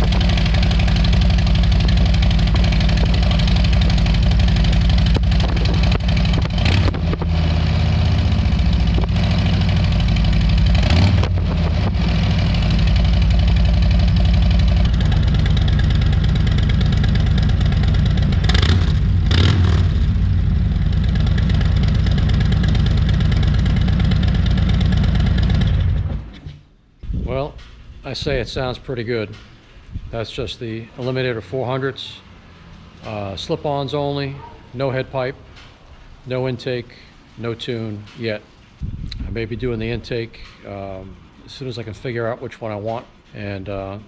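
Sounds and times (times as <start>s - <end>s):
motorcycle engine idling: 0.0s - 26.3s
motorcycle throttle blips: 0.0s - 27.3s.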